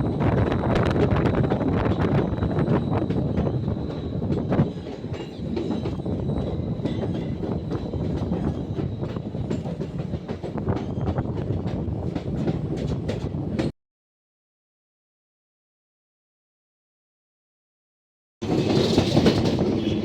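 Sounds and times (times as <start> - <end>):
train rumble: 0.0 - 13.7, 18.4 - 20.0.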